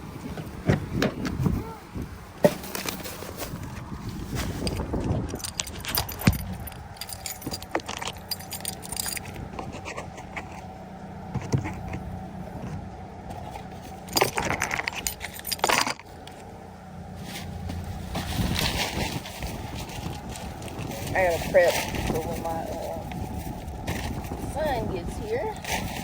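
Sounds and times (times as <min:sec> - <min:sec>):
small hard objects clinking: 0:04.4 - 0:10.7, 0:13.8 - 0:16.5.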